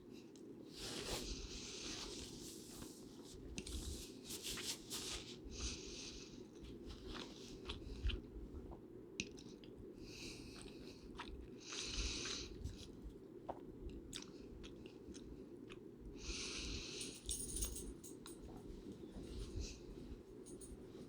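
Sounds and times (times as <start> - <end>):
steady low hum: 0.0 - 21.0
person chewing: 6.4 - 15.9.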